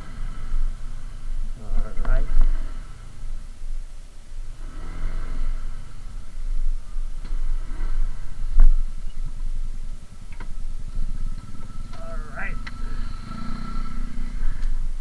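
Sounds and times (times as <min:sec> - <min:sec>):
road rumble: 0:00.0 - 0:15.0
vehicle engine running: 0:00.0 - 0:15.0.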